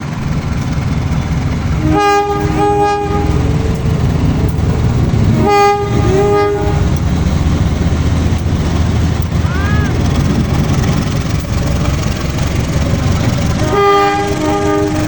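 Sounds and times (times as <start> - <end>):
diesel locomotive rumbling: 0.0 - 15.0
train horn short blasts: 1.8 - 3.5, 5.3 - 7.0, 13.6 - 15.0.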